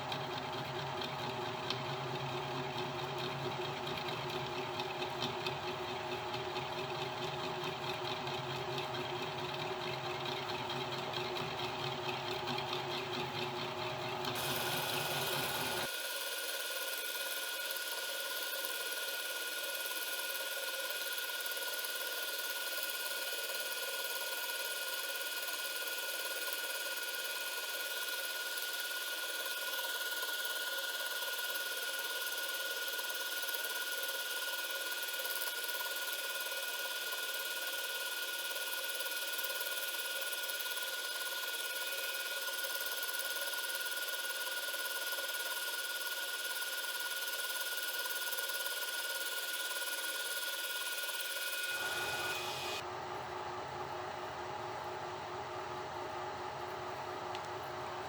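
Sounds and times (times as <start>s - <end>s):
end mill cutting wood board: 14.4s - 15.8s, 51.6s - 52.8s
milling spindle high whine: 51.2s - 52.8s.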